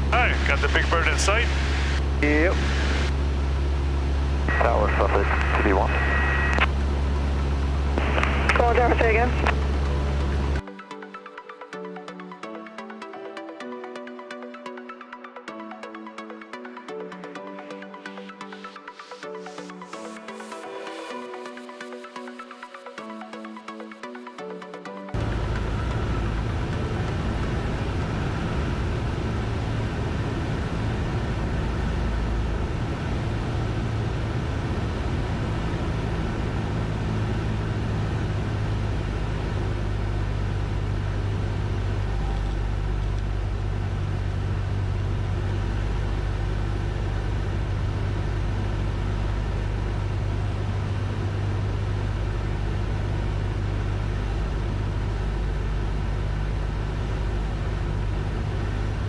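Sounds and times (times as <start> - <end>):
airplane engine and propeller droning: 0.0 - 10.8, 25.1 - 59.0.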